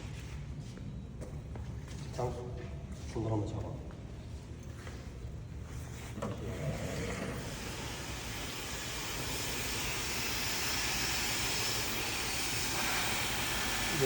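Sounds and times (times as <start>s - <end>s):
hair dryer blowing air: 7.5s - 14.0s.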